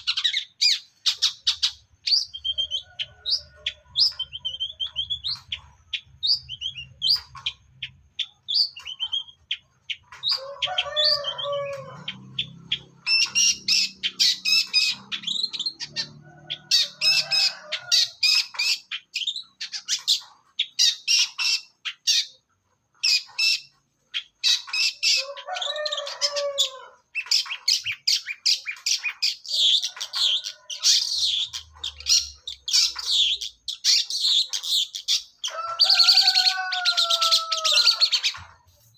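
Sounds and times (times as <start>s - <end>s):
harsh bird chattering: 0.0s - 38.9s
shrike singing rapid chirps: 0.0s - 38.9s.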